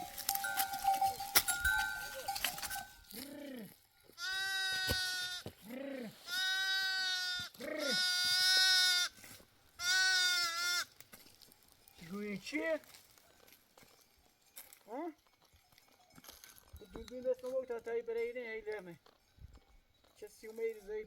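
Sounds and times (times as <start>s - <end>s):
ringing tones: 0.0s - 3.1s
farm animal calling: 0.0s - 9.2s, 9.8s - 11.0s.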